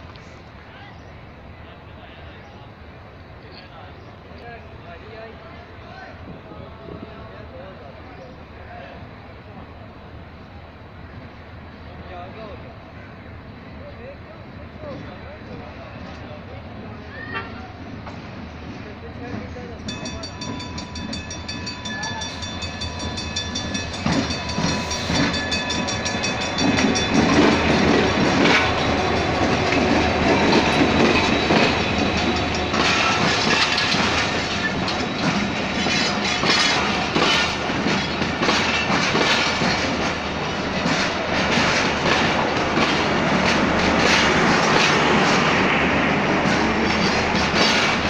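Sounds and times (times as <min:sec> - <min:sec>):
locomotive passing: 0:00.0 - 0:48.0
clickety-clack of train wheels: 0:17.2 - 0:48.0.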